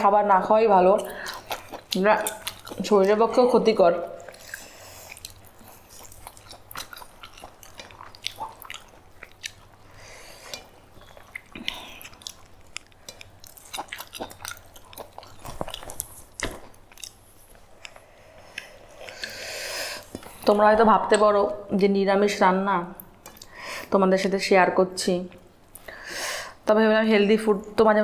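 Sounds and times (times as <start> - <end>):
person chewing food: 1.0 - 2.8, 4.2 - 20.6, 23.0 - 23.6.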